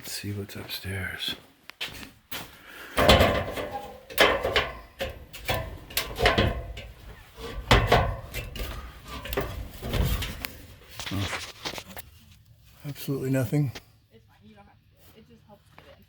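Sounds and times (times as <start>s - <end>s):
rattles: 2.9s - 12.1s.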